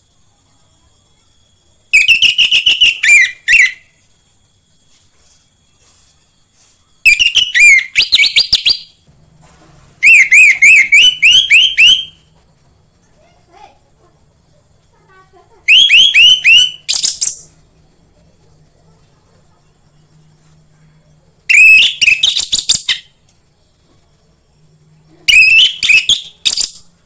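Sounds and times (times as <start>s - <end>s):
thrush whistled song: 1.9s - 4.1s, 7.0s - 9.1s, 10.0s - 12.3s, 15.7s - 17.5s, 21.5s - 23.2s, 25.0s - 27.0s.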